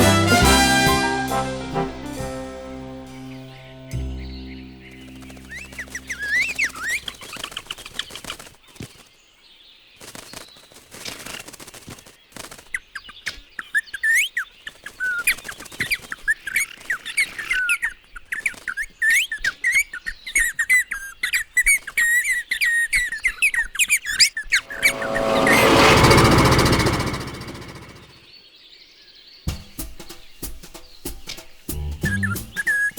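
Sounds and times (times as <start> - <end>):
cartoon sparrows chirping: 3.3 - 8.2
loud mechanical whirring: 24.7 - 28.2.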